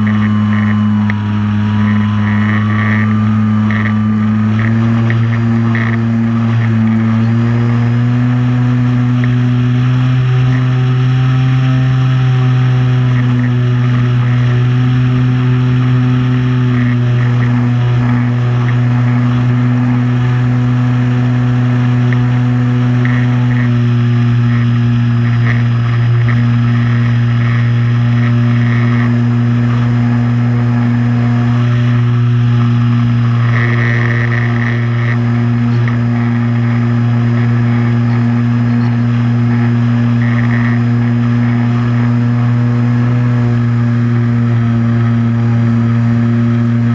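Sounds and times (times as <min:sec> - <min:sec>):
drone motors humming: 0:00.0 - 0:46.9.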